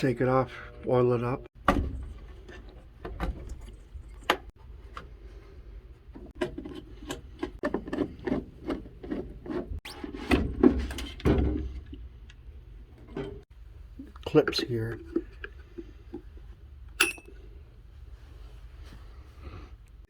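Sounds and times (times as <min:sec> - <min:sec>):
parts rubbing and scraping: 0:06.1 - 0:11.8
low steady hum: 0:10.4 - 0:20.0.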